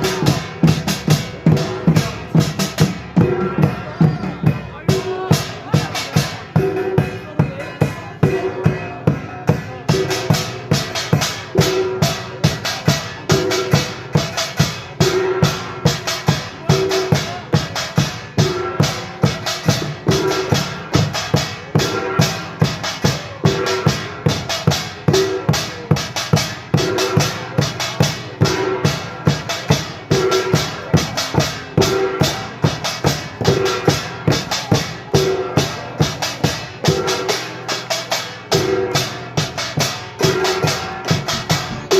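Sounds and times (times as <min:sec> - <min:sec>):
drums and gongs rhythm: 0:00.0 - 0:41.9.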